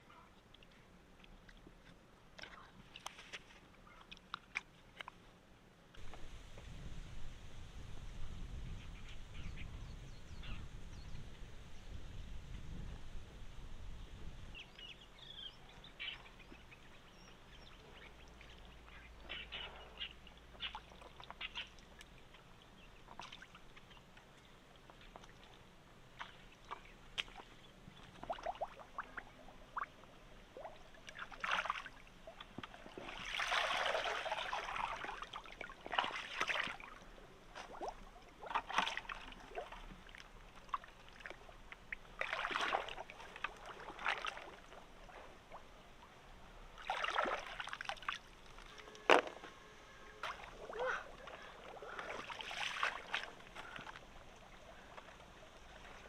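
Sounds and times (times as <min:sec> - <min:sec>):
water sloshing and splashing: 0:15.9 - 0:56.0.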